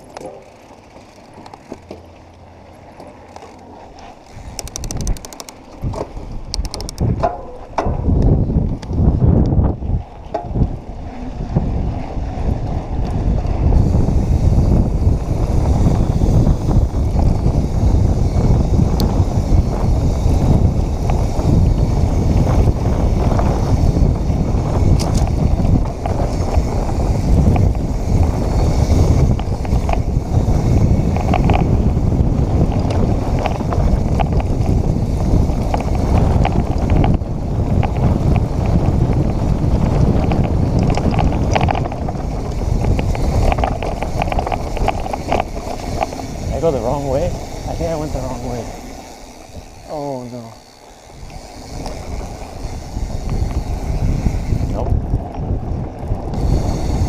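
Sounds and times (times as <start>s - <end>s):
bike rattles and clicks: 0.0s - 57.0s
bike tyre rumble on dirt: 0.0s - 57.0s
wind rushing over microphone: 4.3s - 57.0s.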